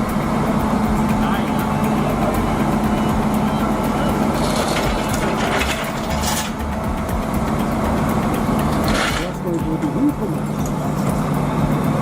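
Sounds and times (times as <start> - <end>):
heavy truck engine running: 0.0 - 12.0
people's voices: 0.4 - 6.5, 8.9 - 11.5.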